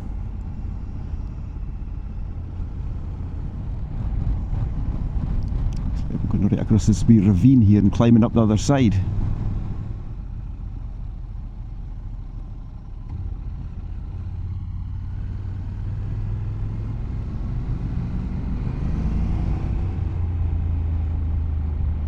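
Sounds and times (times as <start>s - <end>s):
motorcycle engine accelerating: 0.0s - 12.2s, 12.8s - 22.0s.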